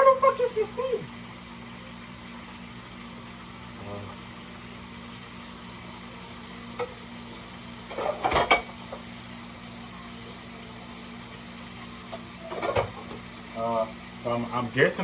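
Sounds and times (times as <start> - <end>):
meat sizzling in a frying pan: 0.0 - 15.0
kitchen utensils clattering: 7.9 - 9.0, 12.1 - 13.2.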